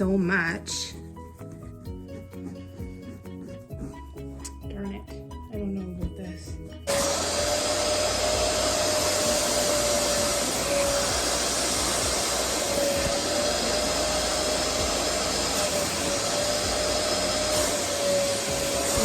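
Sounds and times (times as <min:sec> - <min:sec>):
rushing air: 0:06.9 - 0:19.0
suction motor whine: 0:06.9 - 0:19.0.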